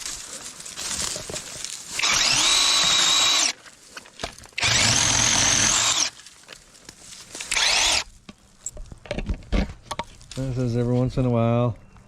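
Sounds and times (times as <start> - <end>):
electric chainsaw whining: 2.0 - 3.6, 4.6 - 6.2, 7.4 - 8.1.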